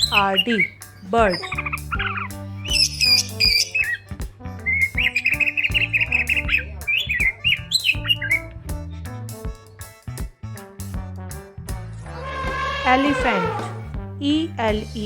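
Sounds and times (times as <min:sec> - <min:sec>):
small bird chirping: 0:00.0 - 0:02.9
background music: 0:00.0 - 0:15.0.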